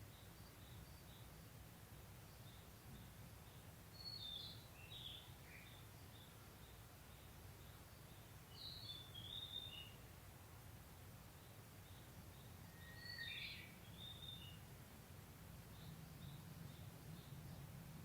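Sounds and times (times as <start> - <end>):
bird singing whistled phrases: 12.7 - 14.6
faint short bird chirps: 12.7 - 14.6.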